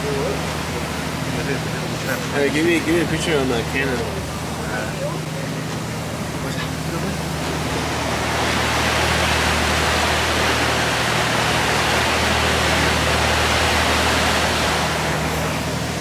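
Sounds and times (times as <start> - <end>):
steady rushing noise: 7.0 - 16.0.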